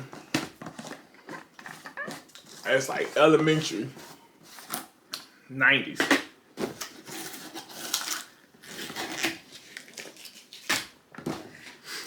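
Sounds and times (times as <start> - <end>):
snack bag crinkling: 7.7 - 10.9.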